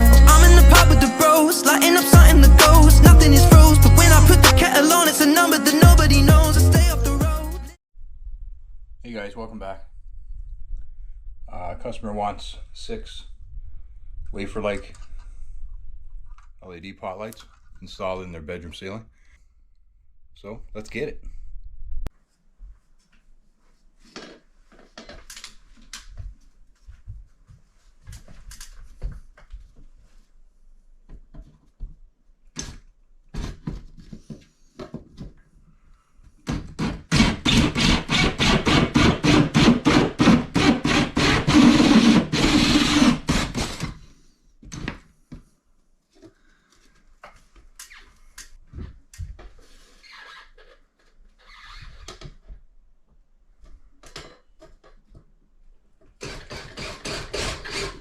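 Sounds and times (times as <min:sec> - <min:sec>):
saw cutting: 0:36.8 - 0:43.9, 0:56.2 - 0:58.0.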